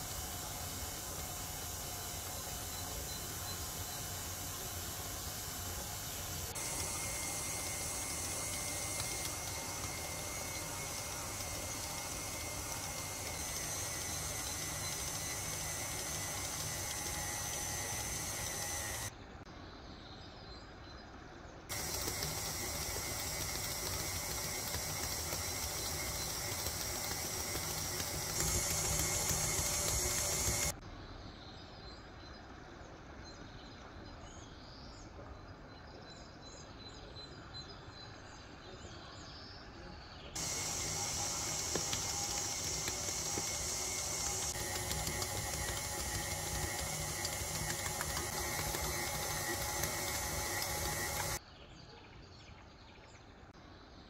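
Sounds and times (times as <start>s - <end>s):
stand mixer kneading dough: 0.0s - 19.1s, 21.7s - 30.8s, 40.4s - 51.4s.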